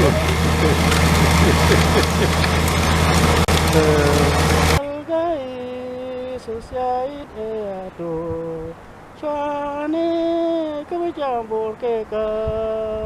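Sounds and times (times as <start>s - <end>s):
person singing slow melody: 3.6s - 13.0s.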